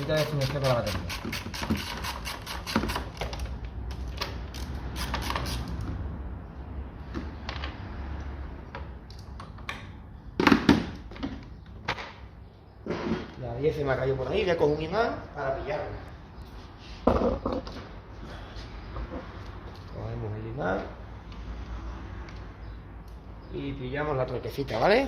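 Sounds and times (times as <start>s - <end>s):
ratchet wrench clicking: 0.0s - 3.1s.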